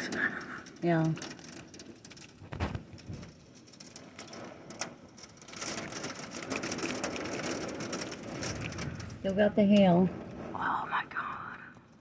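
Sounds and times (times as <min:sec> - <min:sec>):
hail and rain pelting down: 0:00.0 - 0:12.0.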